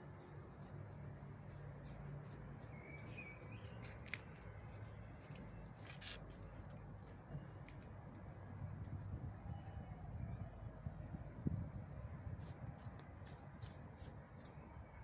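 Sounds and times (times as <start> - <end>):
bird chirps: 2.6 - 4.0.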